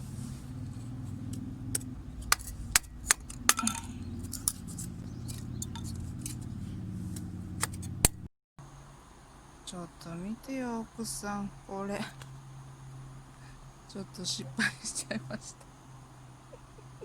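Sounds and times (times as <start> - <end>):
steady low rumble: 0.0 - 8.3
hard objects clicking and clinking: 2.2 - 6.4.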